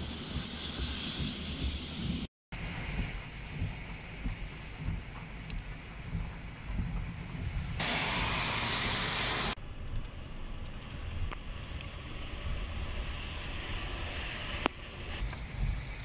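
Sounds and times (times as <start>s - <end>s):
wind rumble on microphone: 0.0s - 7.8s, 9.7s - 16.0s
heavy rain on water: 7.8s - 9.6s.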